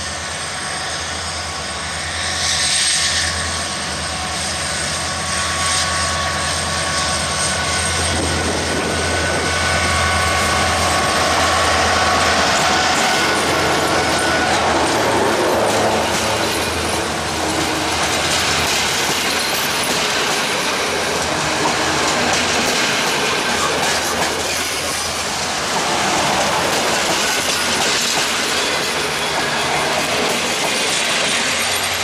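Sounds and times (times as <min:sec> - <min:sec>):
train wheels clattering over joints: 0:06.4 - 0:32.0.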